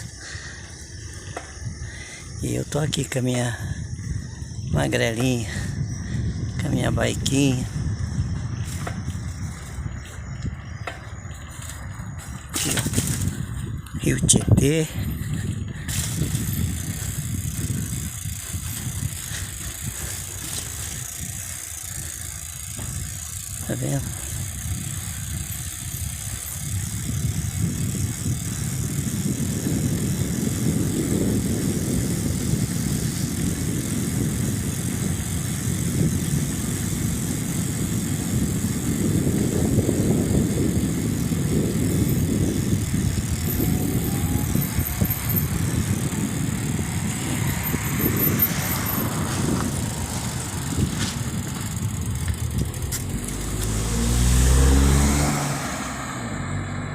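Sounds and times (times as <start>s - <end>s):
wind and road rumble: 0.0s - 56.9s
motor vehicle passing: 15.0s - 28.7s, 39.2s - 56.9s.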